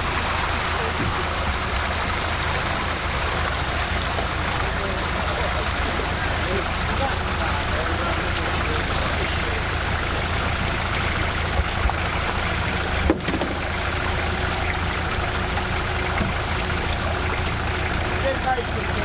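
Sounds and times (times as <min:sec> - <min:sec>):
broad rush of noise: 0:00.0 - 0:05.4
off-road vehicle engine running: 0:00.0 - 0:19.0
short knocks: 0:13.0 - 0:13.9.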